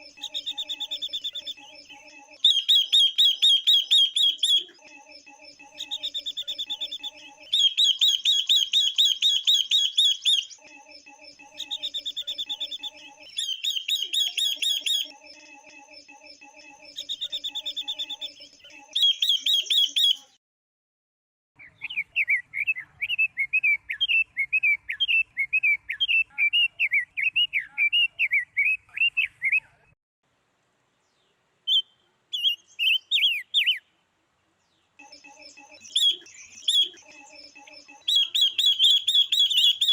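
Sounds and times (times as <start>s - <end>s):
bird trilled phrases: 0.0s - 20.4s, 35.0s - 39.9s.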